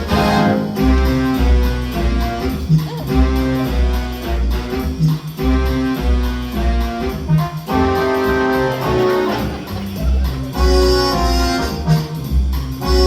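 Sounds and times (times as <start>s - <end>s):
held melody notes: 0.0s - 13.0s
heavy pulsing bass beat: 0.1s - 13.0s.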